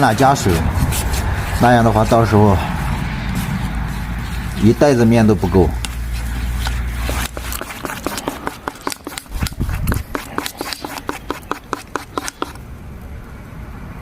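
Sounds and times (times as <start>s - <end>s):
utensil clicking against a bowl: 7.1s - 12.6s.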